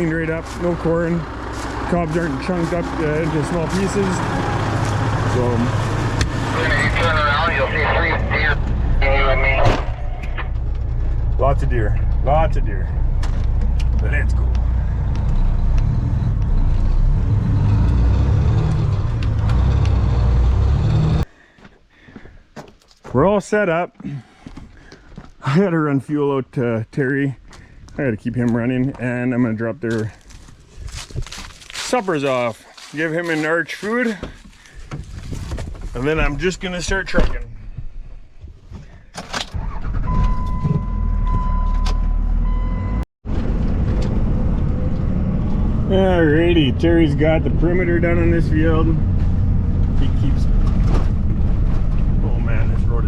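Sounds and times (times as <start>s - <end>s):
truck driving off: 0.0s - 21.3s, 39.6s - 53.0s.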